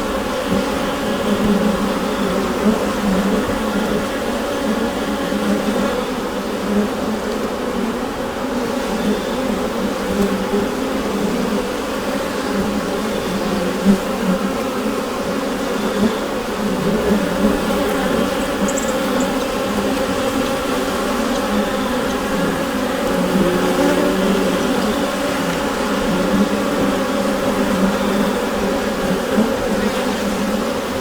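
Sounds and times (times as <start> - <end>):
honeybees buzzing: 0.0 - 31.0
faint ticks: 18.7 - 19.4.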